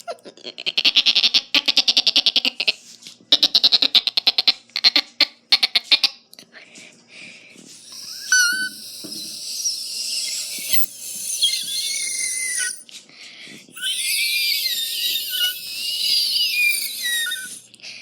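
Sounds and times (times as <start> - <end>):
person squealing: 7.8 - 12.8, 13.8 - 17.7.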